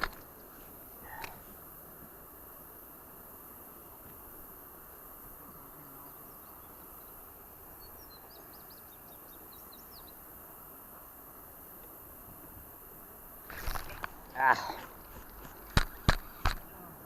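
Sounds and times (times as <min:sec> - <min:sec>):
faint outdoor hiss: 0:00.0 - 0:17.0
small bird chirping: 0:05.5 - 0:10.2.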